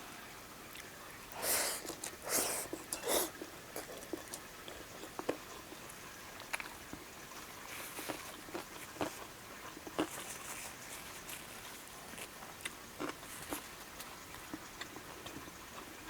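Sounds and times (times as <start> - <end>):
soft chewing: 0.7 - 16.0
short noisy eating bursts: 1.3 - 4.4.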